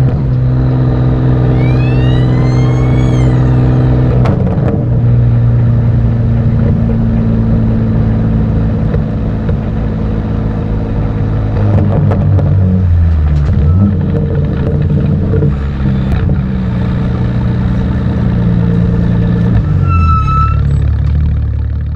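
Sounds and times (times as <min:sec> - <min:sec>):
race car engine running: 0:00.0 - 0:19.9
short high beep: 0:01.5 - 0:03.9.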